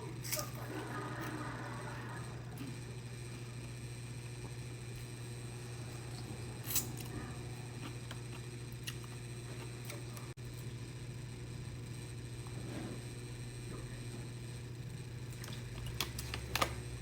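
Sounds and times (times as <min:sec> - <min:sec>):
steady low hum: 0:00.0 - 0:17.0
clicks and crackles of eating food: 0:07.7 - 0:10.7, 0:15.2 - 0:17.0.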